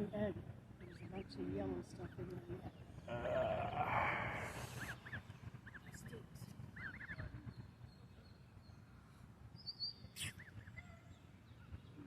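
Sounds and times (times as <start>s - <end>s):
goslings peeping: 4.5s - 6.1s, 6.7s - 7.4s.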